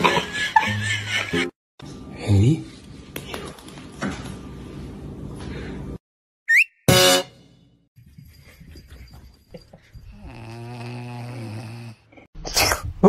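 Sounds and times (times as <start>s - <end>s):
puppy snoring: 10.1s - 12.2s.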